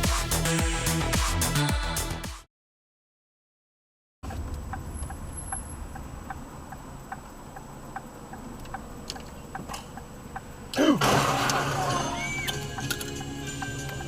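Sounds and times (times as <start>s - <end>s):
engine and road rumble: 4.2s - 10.8s
turn signal clicking: 6.7s - 10.8s.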